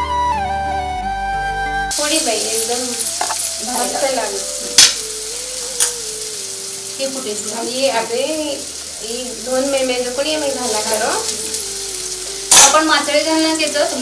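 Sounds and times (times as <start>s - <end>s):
flute music: 0.0s - 14.0s
food sizzling in a pan: 1.9s - 14.0s
spatula clanking on pan: 3.0s - 4.0s, 4.7s - 5.0s, 12.5s - 13.0s.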